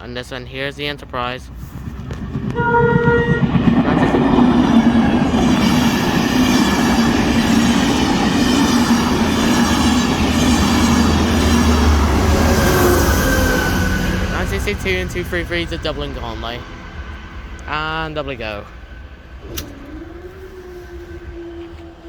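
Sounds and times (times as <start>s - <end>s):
train passing rumble: 0.0s - 22.0s
train horn blast: 2.5s - 4.2s, 10.1s - 15.2s.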